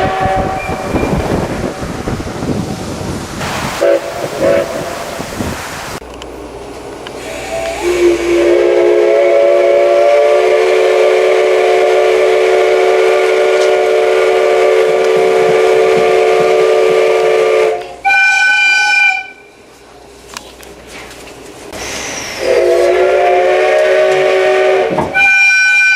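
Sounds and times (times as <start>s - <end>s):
steam locomotive whistle blasts: 0.0s - 1.8s, 3.8s - 4.9s, 7.2s - 19.5s, 21.8s - 25.9s.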